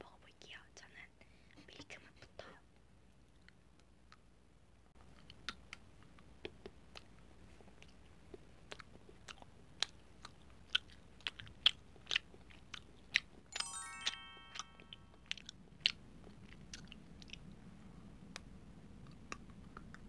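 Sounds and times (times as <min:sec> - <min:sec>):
descending bell-like notes: 0:13.6 - 0:15.2.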